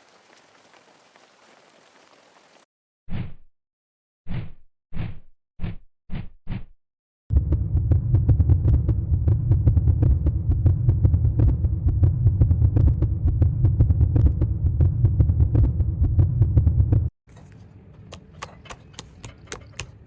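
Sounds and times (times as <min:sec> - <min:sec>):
low rumble: 0:07.3 - 0:17.8.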